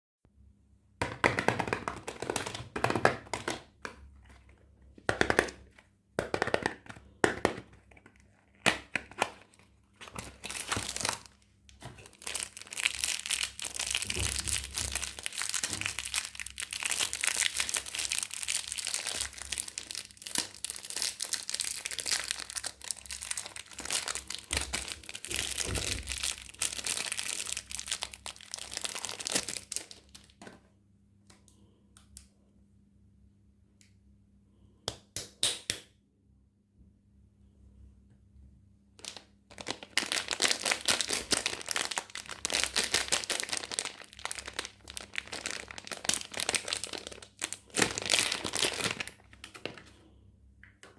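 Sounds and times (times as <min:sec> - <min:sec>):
wrapper crinkling and tearing: 0:06.6 - 0:30.6, 0:39.0 - 0:50.0.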